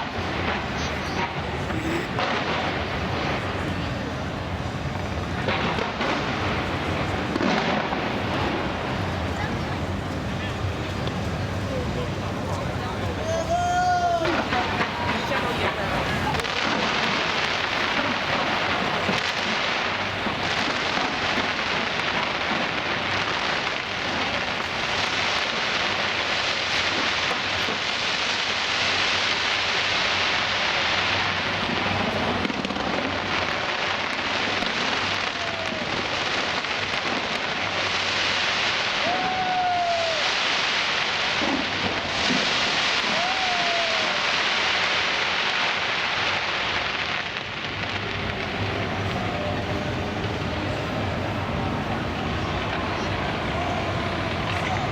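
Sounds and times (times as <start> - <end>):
fireworks crackling and bursting: 0.0 - 54.9
fireworks falling whistles: 12.5 - 54.9.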